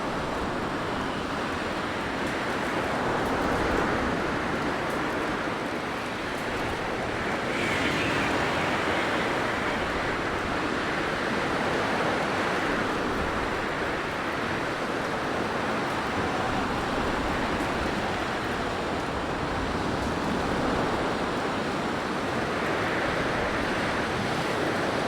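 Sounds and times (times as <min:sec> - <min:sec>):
blizzard wind blowing: 0:06.0 - 0:21.9.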